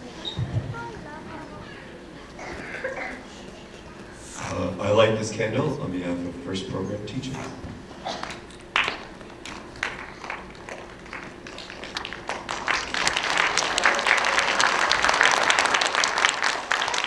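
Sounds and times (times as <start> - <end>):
audience applauding: 8.1 - 17.0.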